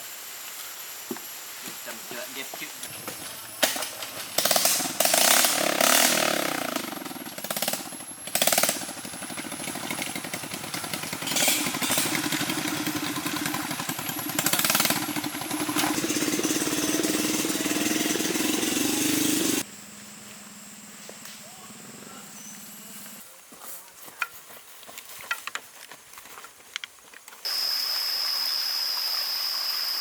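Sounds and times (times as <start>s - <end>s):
small engine running: 3.0s - 23.2s.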